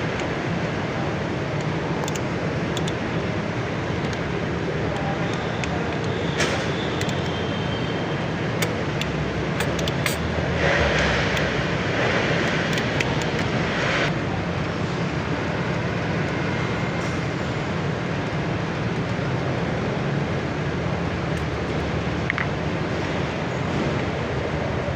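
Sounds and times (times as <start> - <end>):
forklift engine humming: 0.0 - 24.9
sharp clicks: 1.6 - 3.0, 4.9 - 7.4, 8.5 - 13.6.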